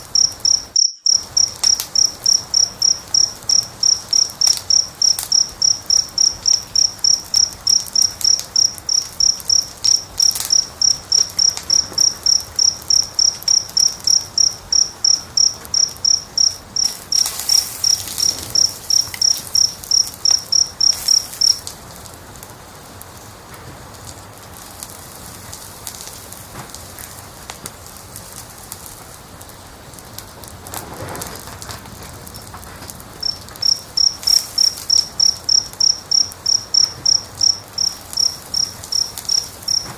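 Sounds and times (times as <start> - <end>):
cricket chirping: 0.0 - 21.7, 33.1 - 39.9
fire crackling and popping: 0.0 - 39.9.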